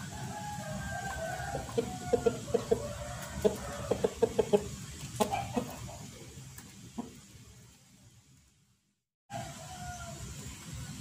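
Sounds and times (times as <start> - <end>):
chickens clucking: 0.0 - 7.4.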